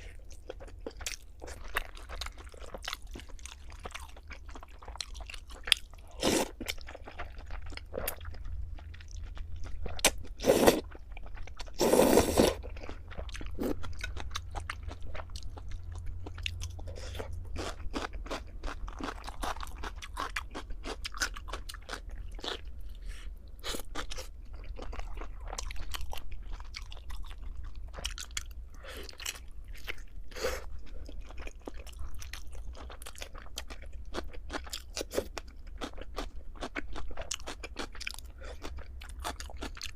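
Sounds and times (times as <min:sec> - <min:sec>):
crunchy food being chewed: 0:00.0 - 0:39.9.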